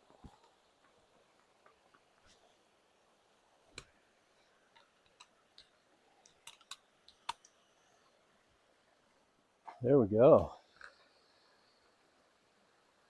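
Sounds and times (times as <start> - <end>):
faint clicks and taps of gear: 0.0 - 2.4, 4.6 - 7.6, 10.6 - 11.1.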